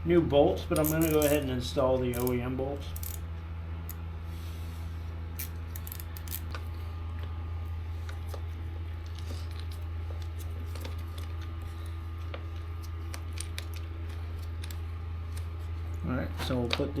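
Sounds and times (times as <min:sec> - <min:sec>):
steady low hum: 0:00.0 - 0:17.0
hand tools clicking on metal: 0:00.7 - 0:01.5, 0:02.1 - 0:03.2, 0:05.4 - 0:06.6.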